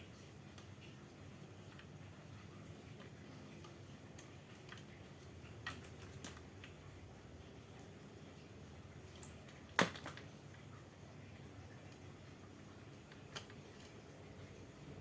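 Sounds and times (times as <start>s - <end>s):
low steady hum: 0.0s - 15.0s
faint clicks and taps: 0.1s - 7.0s.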